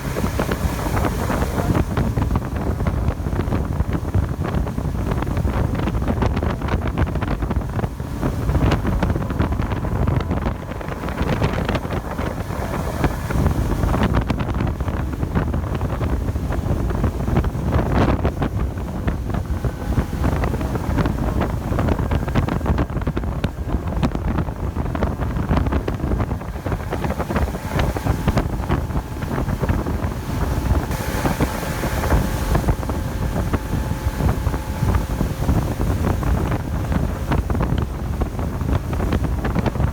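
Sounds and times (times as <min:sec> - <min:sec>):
motorboat engine drone: 0:00.0 - 0:39.9
wind buffeting microphone: 0:00.0 - 0:39.9
faint whining tones: 0:05.9 - 0:15.0.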